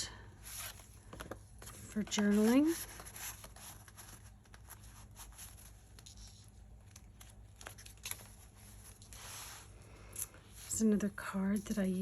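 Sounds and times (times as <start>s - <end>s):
paper rustling: 0.4s - 9.7s.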